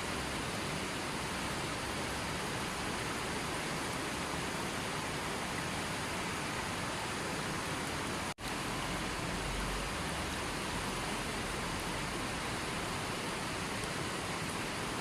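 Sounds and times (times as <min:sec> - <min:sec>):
steady rushing nature sounds: 0:00.0 - 0:15.0.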